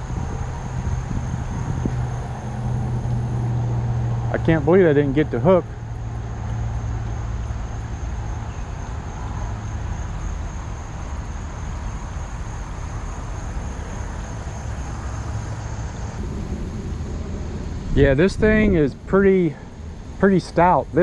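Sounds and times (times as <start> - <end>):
high steady whine: 0.0 - 5.9, 10.1 - 21.0
rushing noise with low rumble: 0.0 - 21.0.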